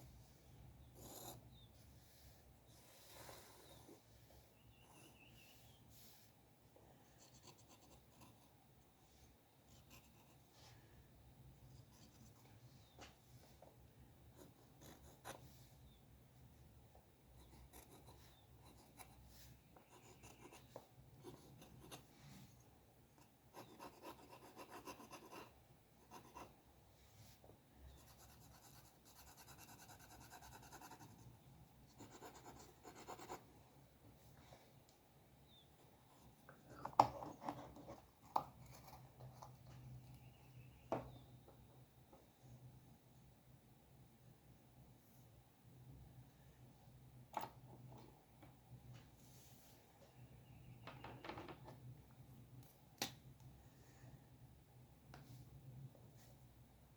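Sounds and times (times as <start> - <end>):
drawing tool scratching paper: 23.2 - 26.5, 28.0 - 31.3.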